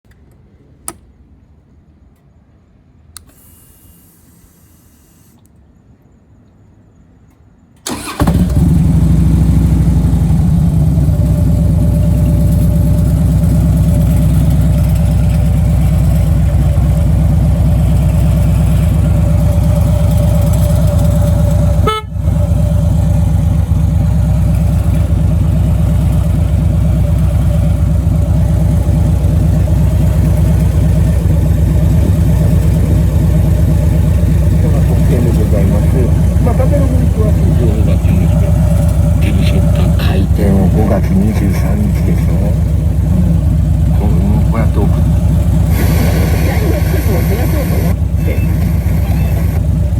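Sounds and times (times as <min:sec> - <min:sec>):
clicks: 0:00.1 - 0:01.1
motorcycle engine idling loudly: 0:07.9 - 0:49.9.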